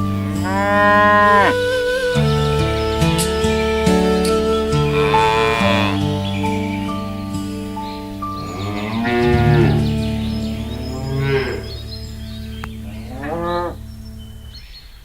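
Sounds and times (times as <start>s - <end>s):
cattle mooing: 0.0s - 2.8s, 4.7s - 6.3s, 8.4s - 14.0s.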